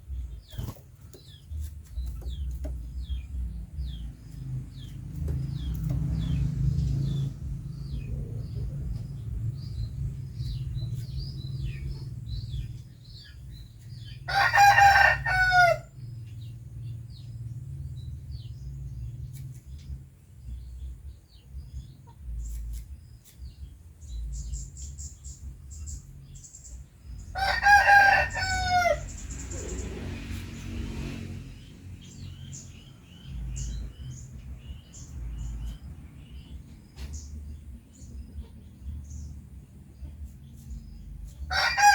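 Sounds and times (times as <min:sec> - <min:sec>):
low rumble: 0:01.5 - 0:14.0
rooster crowing: 0:14.3 - 0:15.9, 0:27.3 - 0:29.2, 0:41.5 - 0:41.9.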